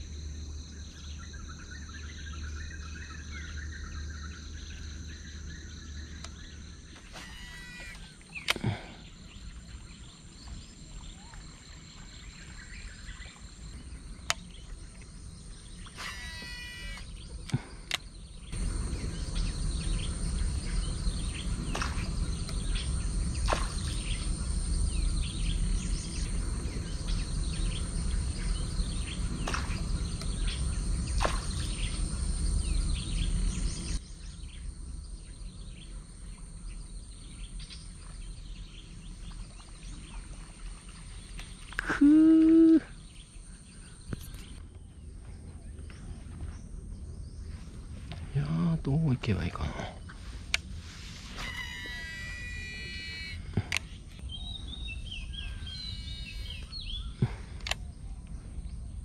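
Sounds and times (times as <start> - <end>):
faint insects: 0.0 - 59.0
birds chirping: 0.2 - 59.0
low rumble: 17.1 - 41.6.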